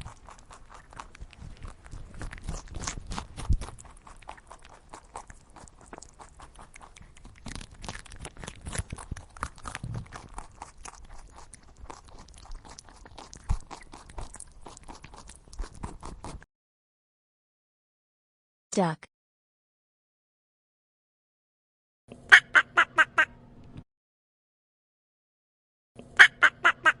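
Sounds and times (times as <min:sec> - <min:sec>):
rabbit crunching food: 0:00.0 - 0:16.5.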